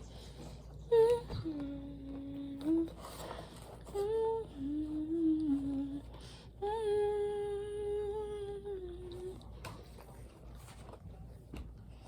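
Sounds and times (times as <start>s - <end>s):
person humming: 3.9s - 9.4s.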